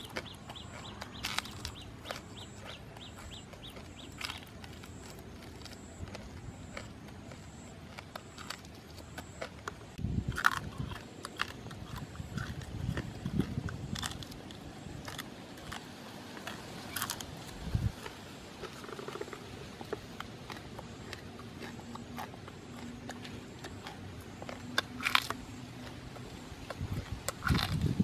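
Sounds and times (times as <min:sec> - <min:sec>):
person chewing and crunching: 0:00.0 - 0:28.0.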